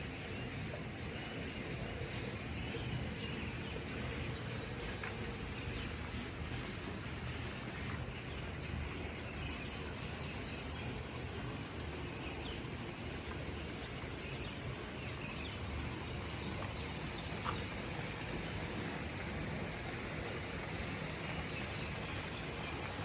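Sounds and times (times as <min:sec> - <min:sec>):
background hiss: 0:00.0 - 0:23.0.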